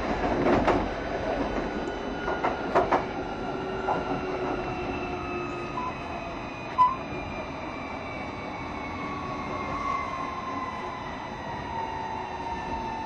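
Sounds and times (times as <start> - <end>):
wheels rumbling on rails: 0.0 - 9.8.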